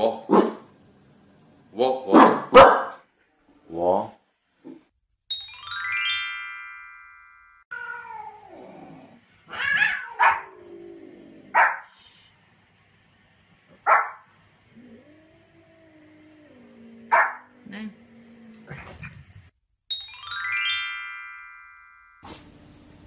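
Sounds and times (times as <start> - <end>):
dog barking: 0.3 - 0.6, 2.1 - 3.0, 9.8 - 10.5, 11.5 - 11.9, 13.8 - 14.2, 17.1 - 17.5
rising chime: 5.3 - 7.7, 19.9 - 22.2
wavering meow-like calls: 7.7 - 10.6.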